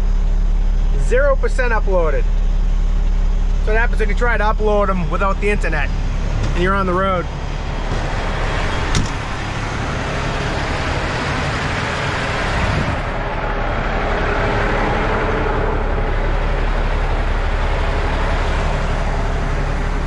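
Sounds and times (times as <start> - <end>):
truck engine running: 0.0 - 20.0
constant rushing noise: 5.3 - 20.0.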